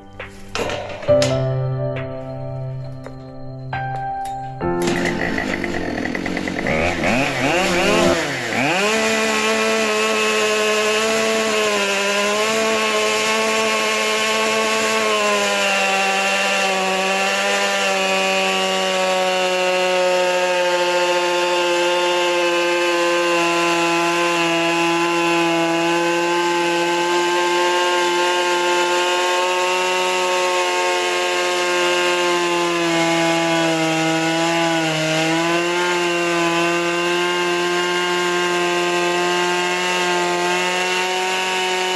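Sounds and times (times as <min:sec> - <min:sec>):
chainsaw cutting log: 0:04.6 - 0:41.9.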